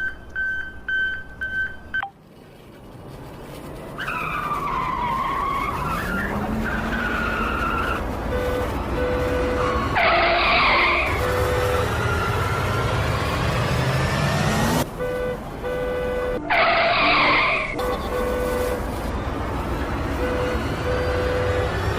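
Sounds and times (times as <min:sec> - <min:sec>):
electronic engine rush: 0:09.5 - 0:14.9
gliding screech-like tones: 0:16.4 - 0:17.8.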